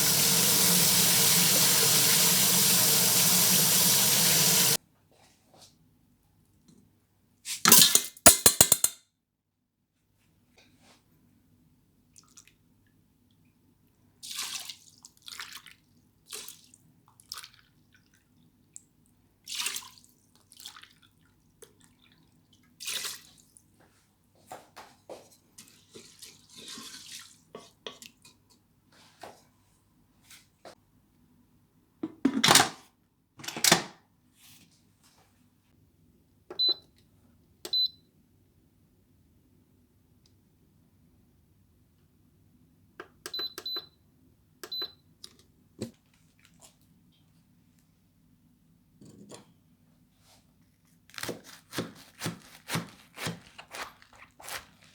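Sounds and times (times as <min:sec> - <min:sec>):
tap water running and splashing: 0:00.0 - 0:04.8
short high appliance beeps: 0:43.3 - 0:44.0, 0:44.6 - 0:45.0.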